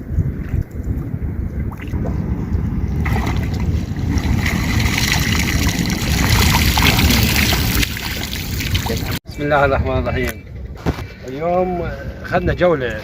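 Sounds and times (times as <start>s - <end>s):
wind buffeting microphone: 0.0s - 13.0s
hissing rush of water: 4.0s - 9.2s.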